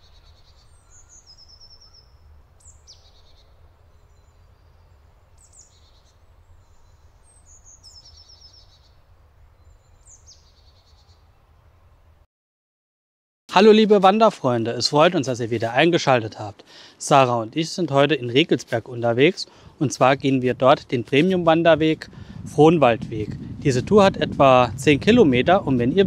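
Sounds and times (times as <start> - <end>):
low steady rumble: 20.4 - 26.0.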